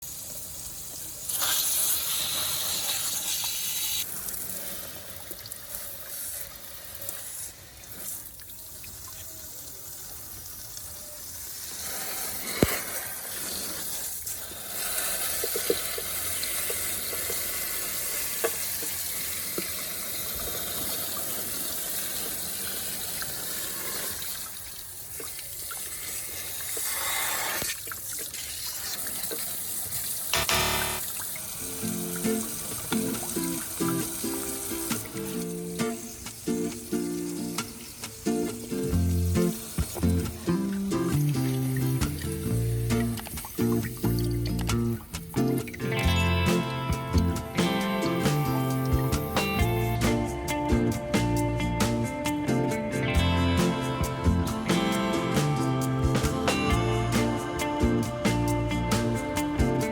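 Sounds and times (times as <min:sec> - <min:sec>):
water running and splashing: 0:00.2 - 0:46.0.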